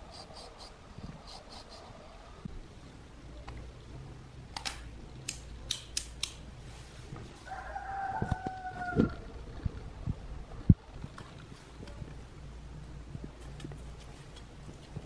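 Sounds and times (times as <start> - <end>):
rooster crowing: 7.4 - 9.4.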